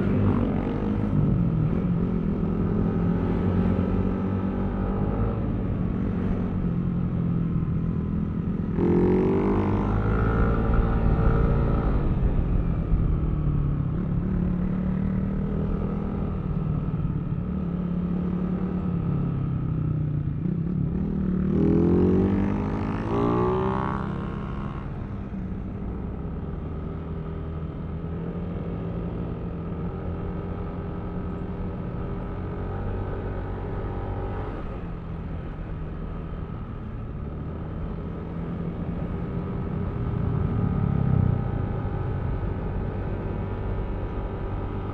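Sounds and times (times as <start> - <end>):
road noise: 0.0 - 44.9.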